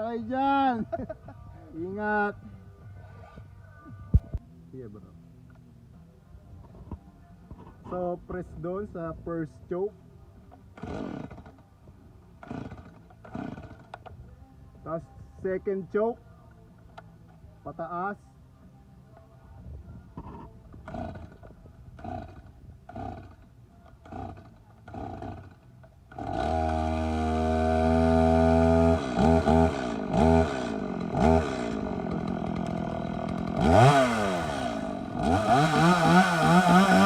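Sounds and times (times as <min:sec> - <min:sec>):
chainsaw engine idling and revving: 0:10.7 - 0:11.7, 0:12.4 - 0:14.1, 0:20.2 - 0:37.0
chainsaw starter cord pulls: 0:10.7 - 0:11.7, 0:12.4 - 0:14.1, 0:20.2 - 0:37.0.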